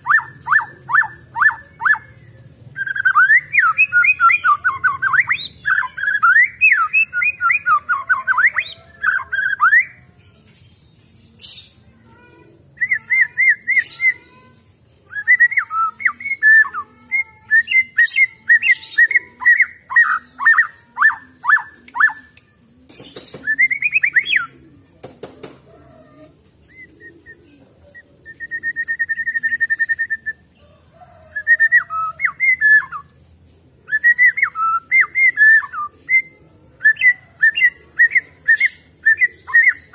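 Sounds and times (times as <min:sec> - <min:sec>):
bird trill: 0:00.0 - 0:10.0, 0:12.8 - 0:24.6
bird singing whistled notes: 0:02.8 - 0:10.0, 0:15.1 - 0:22.4, 0:23.3 - 0:24.5, 0:26.7 - 0:30.4, 0:31.2 - 0:33.2, 0:33.9 - 0:39.8.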